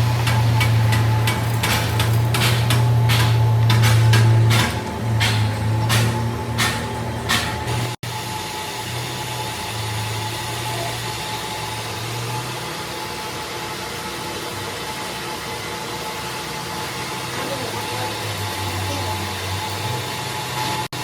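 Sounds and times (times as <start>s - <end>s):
workshop machinery humming: 0.0s - 21.0s
sharp knocks: 0.2s - 8.0s.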